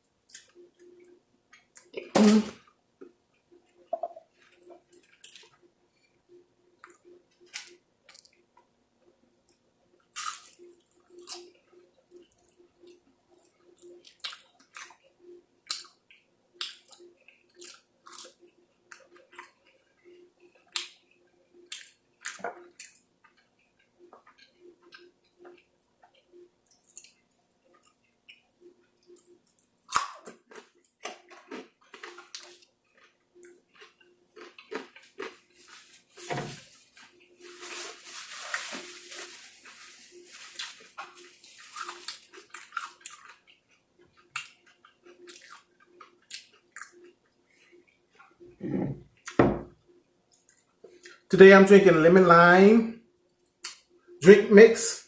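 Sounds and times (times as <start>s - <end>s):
faint steady hum: 0.0s - 55.0s
wet chewing and lip smacking: 12.1s - 35.4s, 41.8s - 48.5s.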